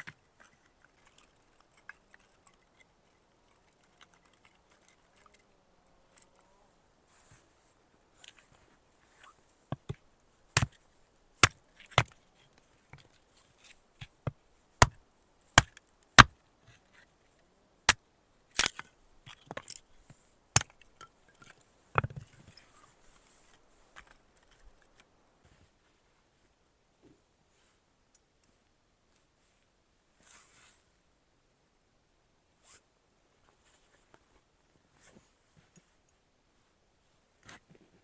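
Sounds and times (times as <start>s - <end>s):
sharp chopping knocks: 14.2s - 15.0s, 15.6s - 16.4s.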